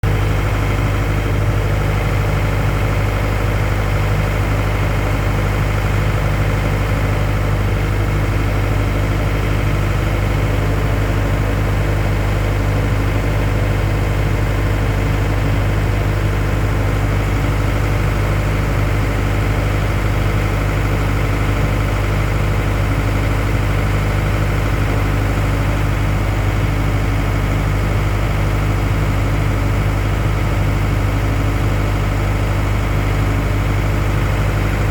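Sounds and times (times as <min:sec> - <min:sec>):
machine droning with deep hum: 0:29.6 - 0:34.9.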